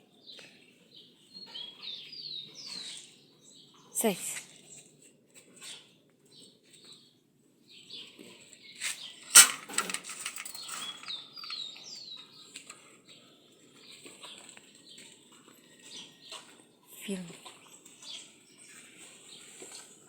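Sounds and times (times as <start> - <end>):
birds chirping: 7.8 - 15.0.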